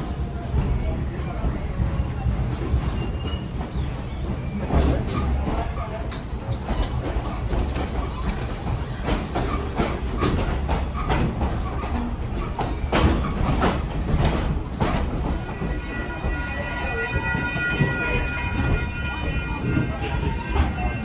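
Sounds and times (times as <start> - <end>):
train rumbling: 0.0 - 21.0
train wheels clicking and clanking: 0.0 - 21.0
train horn chord: 15.5 - 20.0.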